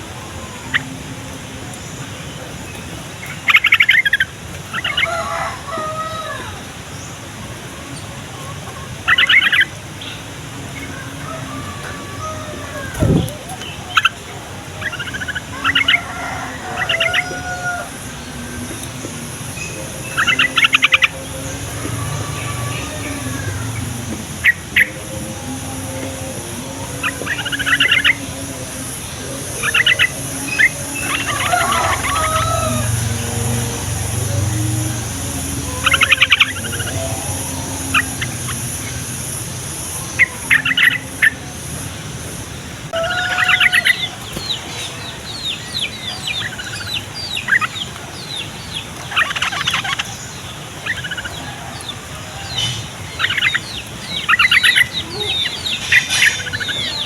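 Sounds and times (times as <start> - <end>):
steady low hum: 6.4 - 57.0
bird chattering calls: 16.8 - 41.8, 43.0 - 57.0.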